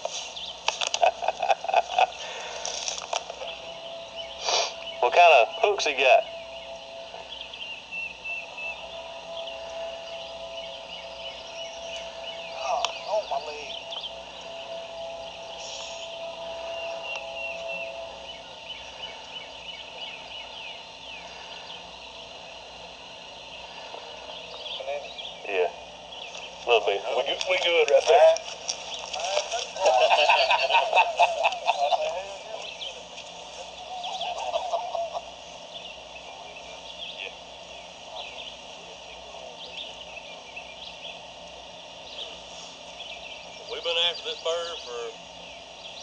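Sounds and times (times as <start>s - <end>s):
outdoor background noise: 0.0s - 46.0s
small birds chirping: 0.0s - 46.0s
steady background hiss: 0.0s - 46.0s
turkey gobbling: 29.2s - 32.3s, 33.8s - 35.4s.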